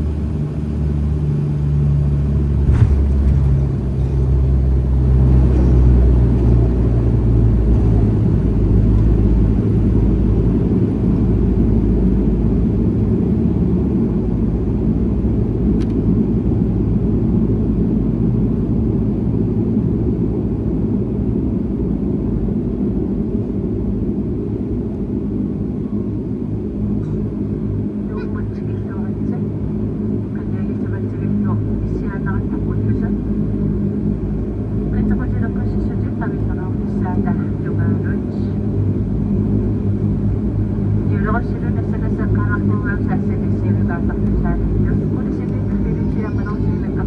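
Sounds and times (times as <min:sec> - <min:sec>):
low humming tones: 0:00.0 - 0:16.6, 0:28.1 - 0:47.0
airliner engine and wheel rumble: 0:00.0 - 0:47.0.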